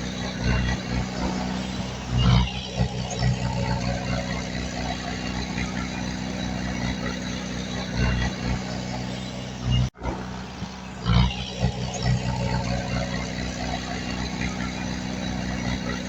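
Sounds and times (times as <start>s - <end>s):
heavy machinery diesel engine: 0.0s - 16.0s.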